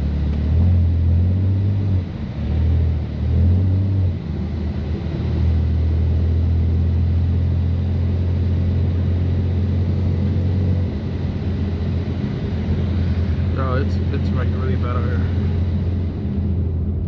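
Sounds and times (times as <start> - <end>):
car engine droning while cruising: 0.0 - 17.0.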